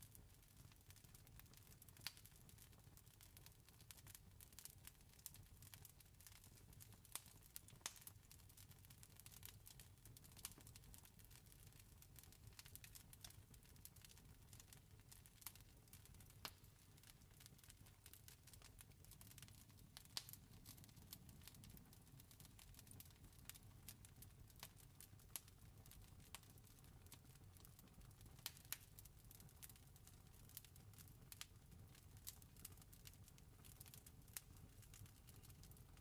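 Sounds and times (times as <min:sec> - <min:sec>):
campfire crackling: 0:07.1 - 0:08.1, 0:15.4 - 0:24.6, 0:28.4 - 0:29.8, 0:30.5 - 0:36.0.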